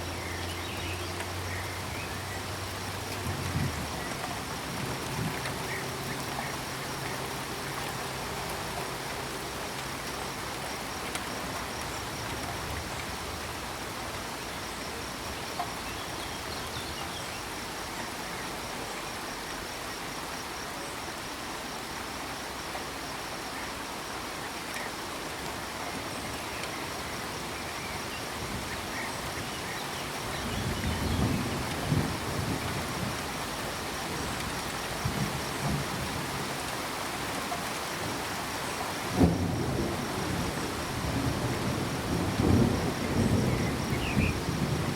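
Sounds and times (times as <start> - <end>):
cricket chirping: 0.0 - 44.9
rain falling: 0.0 - 44.9
thunder rumble: 39.1 - 44.9.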